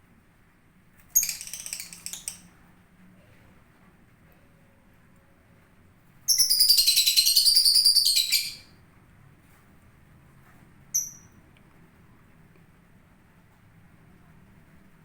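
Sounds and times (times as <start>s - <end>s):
lovebird chattering calls: 1.2s - 2.4s, 6.3s - 8.6s.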